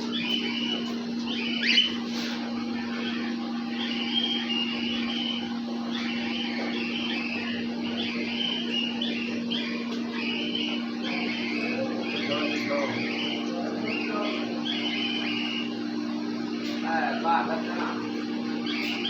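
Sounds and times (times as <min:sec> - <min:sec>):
cockatiels chirping: 0:00.0 - 0:15.8, 0:16.6 - 0:19.0
low machine hum: 0:00.0 - 0:19.0.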